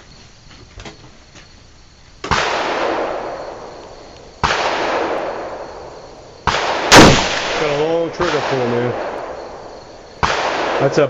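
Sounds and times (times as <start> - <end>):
rifle shots with echo: 2.3 - 3.8, 4.4 - 11.0.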